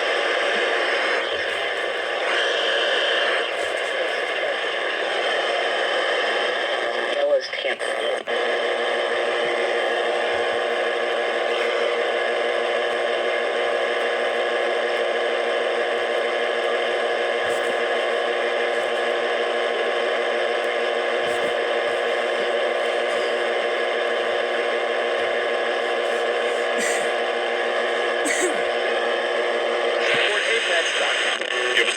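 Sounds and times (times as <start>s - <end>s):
radio static hiss: 0.0s - 31.9s.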